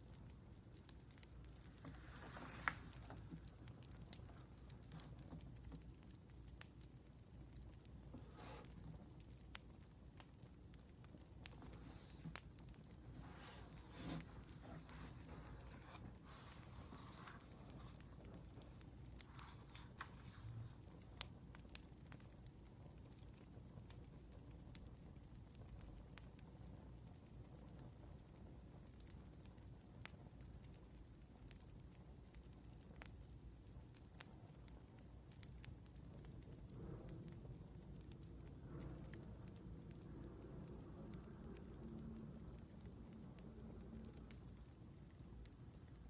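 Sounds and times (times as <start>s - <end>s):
low steady hum: 0.0s - 23.0s, 34.4s - 46.0s
wood fire crackling: 0.0s - 46.0s.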